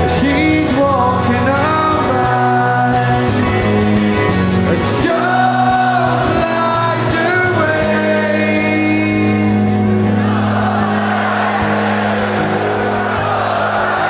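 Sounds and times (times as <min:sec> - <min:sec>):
person singing: 0:00.0 - 0:03.7, 0:04.6 - 0:10.6
live rock band playing: 0:00.0 - 0:14.0.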